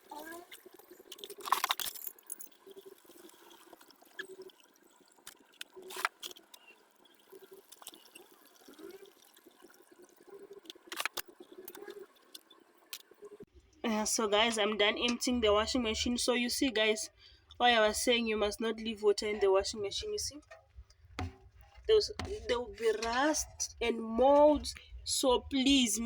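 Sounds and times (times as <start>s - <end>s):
faint water draining into bottle: 2.6s - 12.9s
sharp knocks of plastic bottle: 21.2s - 21.5s.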